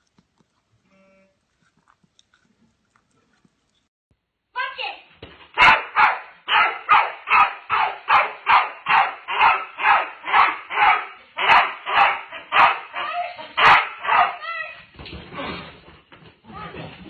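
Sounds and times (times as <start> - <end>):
dog barking rapidly: 5.6 - 14.5.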